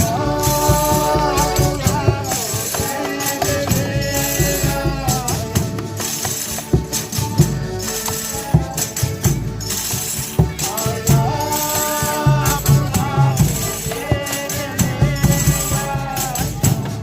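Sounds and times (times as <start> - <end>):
low drum beats: 0.0 - 17.0
tambourine shaken and struck: 0.0 - 17.0
voices singing held notes: 0.0 - 17.0.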